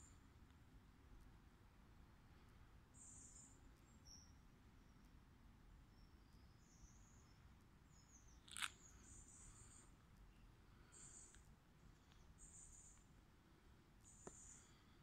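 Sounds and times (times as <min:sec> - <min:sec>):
faint high-pitched bird chirps: 0:02.9 - 0:05.2, 0:05.8 - 0:13.1, 0:14.0 - 0:15.0.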